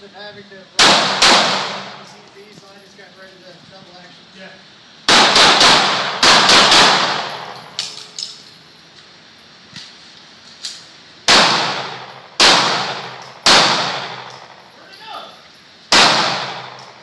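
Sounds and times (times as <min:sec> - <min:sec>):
pistol shots echoing: 0:00.8 - 0:02.1, 0:05.1 - 0:08.1, 0:11.3 - 0:14.6, 0:15.9 - 0:17.0.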